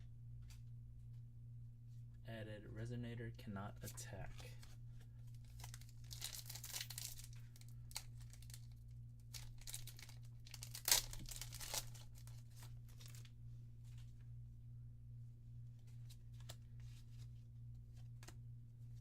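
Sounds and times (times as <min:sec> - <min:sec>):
foil wrapper crinkling and tearing: 0:05.4 - 0:13.3.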